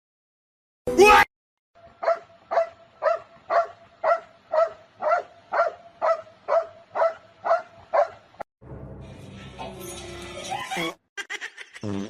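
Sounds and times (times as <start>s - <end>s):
dog barking: 2.0s - 8.2s.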